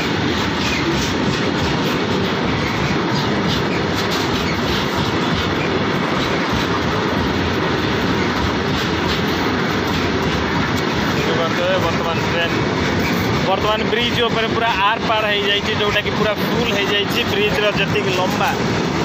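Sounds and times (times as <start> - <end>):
freight train rumbling: 0.0 - 19.0
wheels clacking over rail joints: 0.0 - 19.0.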